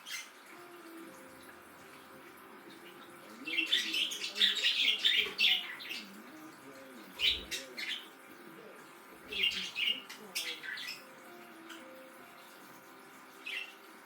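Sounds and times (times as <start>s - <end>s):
budgerigars chirping: 0.0s - 0.5s, 2.0s - 6.4s, 7.0s - 8.2s, 9.2s - 12.0s, 13.4s - 13.9s.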